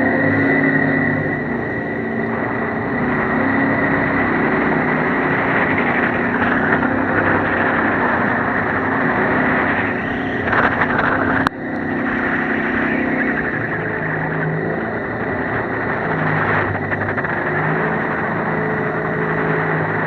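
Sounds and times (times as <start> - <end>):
boat engine drone with whine: 0.0 - 20.0
rushing water: 2.2 - 20.0.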